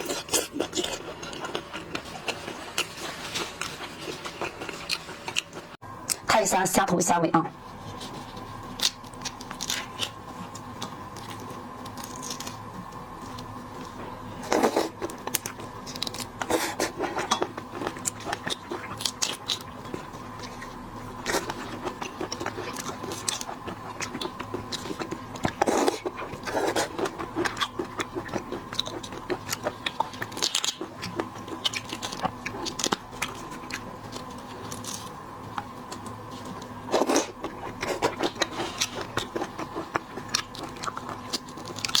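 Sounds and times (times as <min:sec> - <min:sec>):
faint steady hum: 0:00.0 - 0:42.0
shrimp shells cracking: 0:08.7 - 0:12.6.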